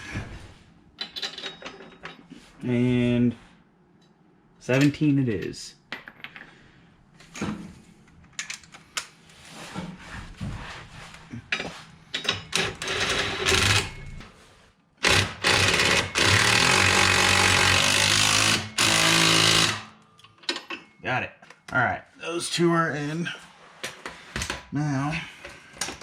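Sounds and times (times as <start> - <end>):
power tool driving bolts: 12.5 - 14.1, 15.0 - 20.0.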